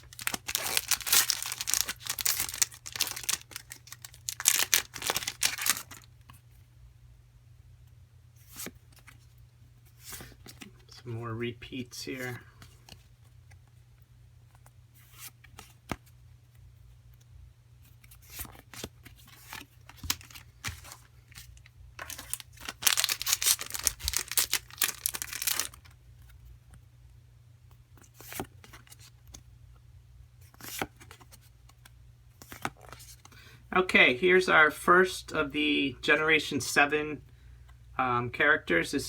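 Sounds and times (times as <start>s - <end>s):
foil wrapper tearing: 0.0s - 6.1s, 22.0s - 25.8s
cards being handled: 0.0s - 6.4s, 18.0s - 26.4s, 28.0s - 29.4s, 30.4s - 33.4s.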